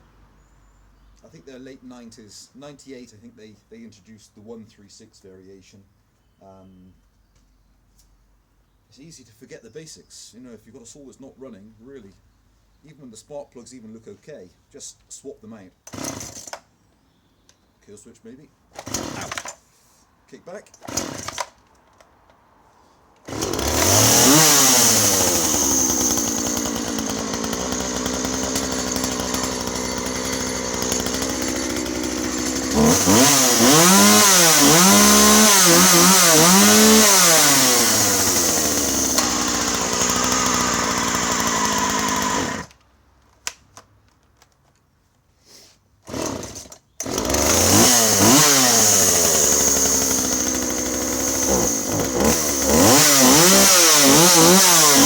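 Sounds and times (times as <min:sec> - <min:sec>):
chainsaw running and revving: 0:15.9 - 0:16.6, 0:18.8 - 0:19.6, 0:20.8 - 0:21.5, 0:23.2 - 0:42.7, 0:46.1 - 0:55.0.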